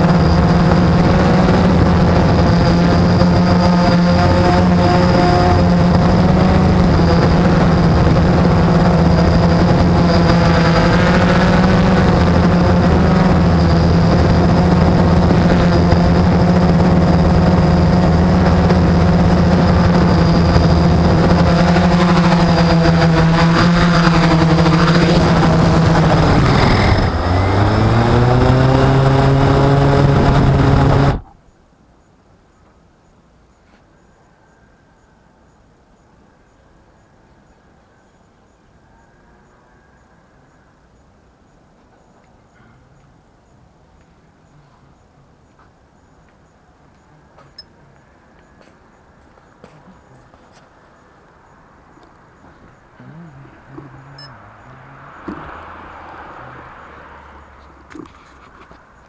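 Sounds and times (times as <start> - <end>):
quadcopter motors droning: 0.0 - 31.3, 52.0 - 59.0.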